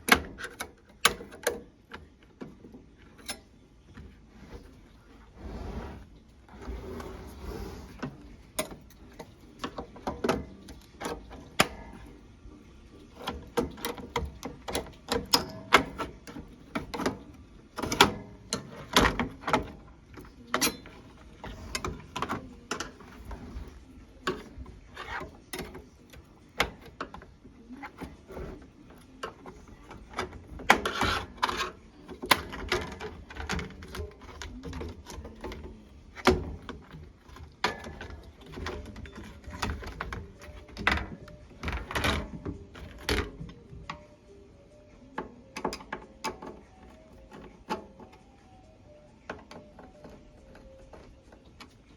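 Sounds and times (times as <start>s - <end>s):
clicks and knocks on microwave parts: 0.0s - 4.2s, 8.0s - 44.0s.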